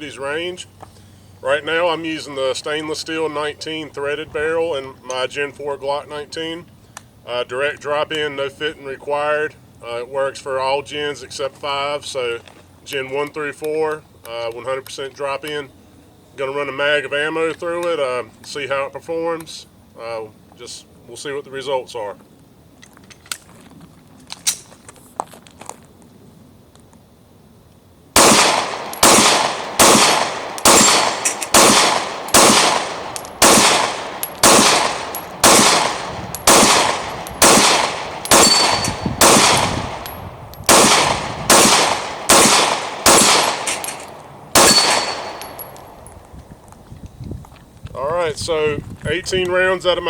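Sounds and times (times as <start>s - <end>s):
pistol shots echoing: 28.2s - 46.1s.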